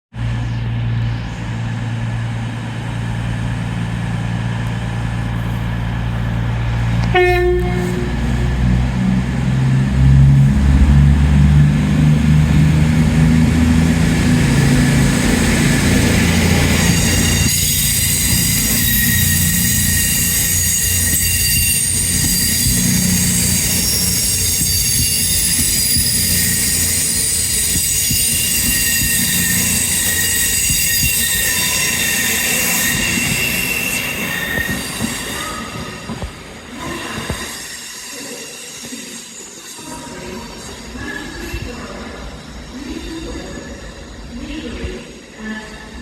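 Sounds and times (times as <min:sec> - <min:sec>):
train engine running: 0:00.1 - 0:46.0
high-pitched wheel squeal: 0:07.0 - 0:08.8, 0:14.5 - 0:44.3
train horn blast: 0:07.0 - 0:11.5.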